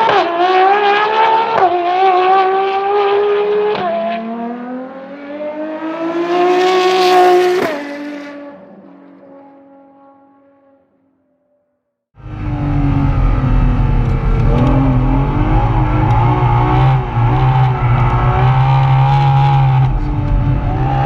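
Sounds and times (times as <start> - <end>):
sports car accelerating through gears: 0.0 - 10.8, 12.2 - 21.0.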